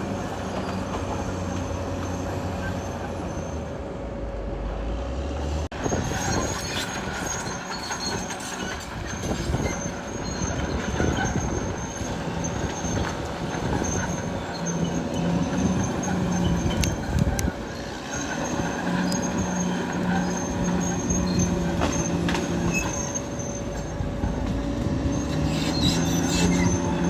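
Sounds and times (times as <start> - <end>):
steel tracks squealing and clanking: 0.0 - 4.1, 5.7 - 27.0
bulldozer diesel engine under load: 0.0 - 27.0.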